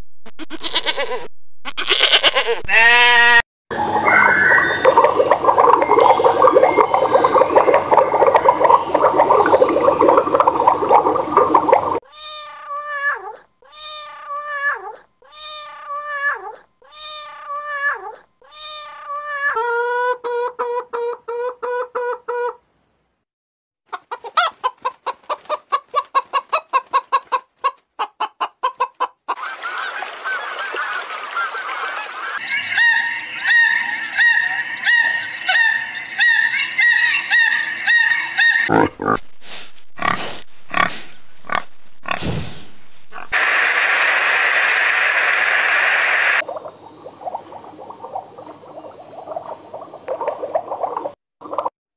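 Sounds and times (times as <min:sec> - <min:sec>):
high steady animal calls: 0:03.8 - 0:12.0, 0:32.4 - 0:39.0
hen clucking rapidly: 0:23.9 - 0:30.0.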